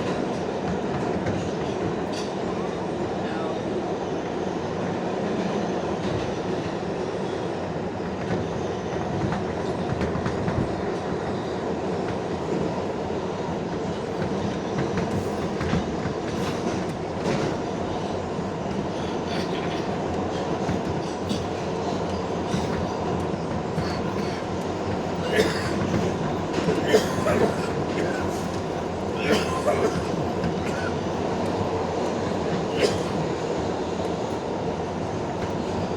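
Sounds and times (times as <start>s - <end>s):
subway wheels rumbling on track: 0.0s - 35.9s.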